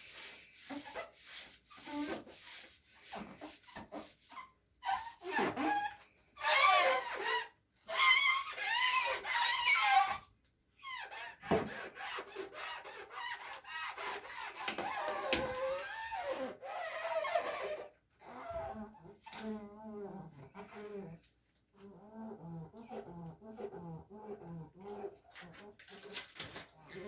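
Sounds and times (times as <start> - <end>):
scrubbing with squeaks: 0.0 - 27.0.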